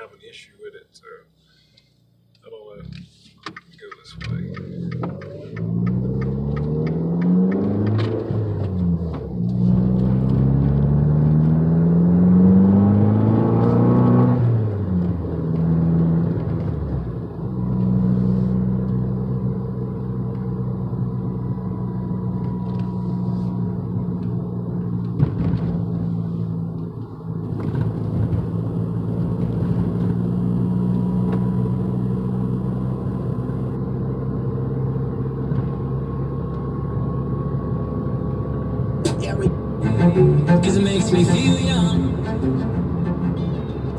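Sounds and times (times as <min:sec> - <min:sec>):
car engine revving and droning: 0:02.8 - 0:43.9.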